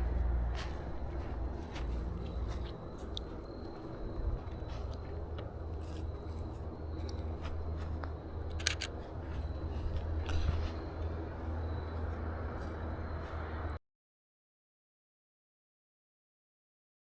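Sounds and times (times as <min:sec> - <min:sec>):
light clicks: 0:08.0 - 0:09.0
camera shutter double click: 0:08.6 - 0:08.9.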